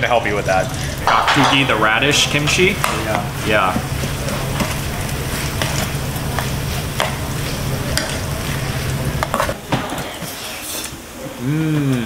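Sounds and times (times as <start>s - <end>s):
low hum: 1.0s - 5.1s
fried rice sizzling in a pan: 1.9s - 10.7s.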